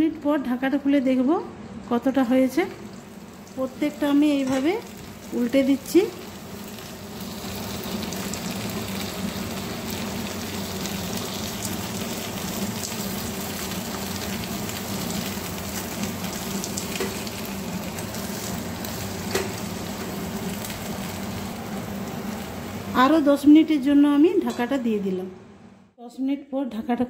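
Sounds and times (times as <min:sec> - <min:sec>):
fish sizzling in oil: 0:02.8 - 0:23.2.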